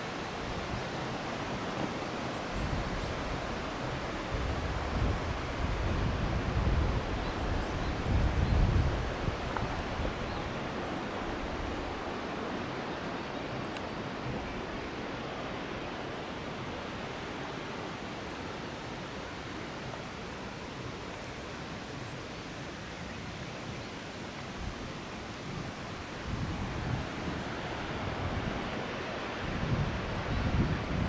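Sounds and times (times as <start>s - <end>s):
waterfall rushing: 25.1s - 31.0s.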